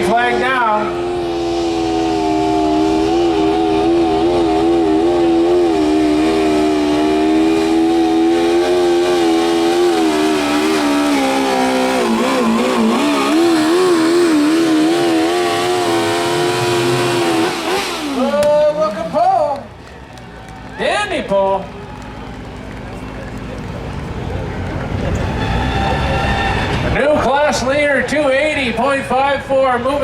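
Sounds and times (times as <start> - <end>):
lawn tractor engine at high revs: 0.0 - 19.9.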